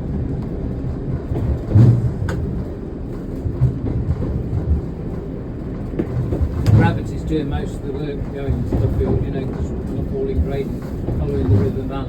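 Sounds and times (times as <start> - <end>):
low thuds: 0.0 - 12.0
train engine and wheels rumbling: 0.0 - 12.0.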